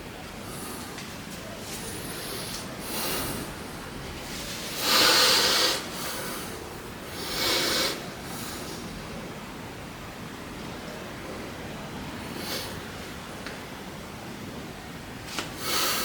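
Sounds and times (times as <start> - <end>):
person breathing hard: 1.9 - 3.7, 4.7 - 8.9, 15.6 - 16.0.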